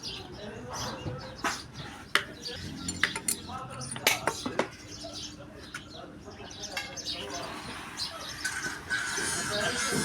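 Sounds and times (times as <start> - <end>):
metal-on-metal scraping: 7.3 - 10.0.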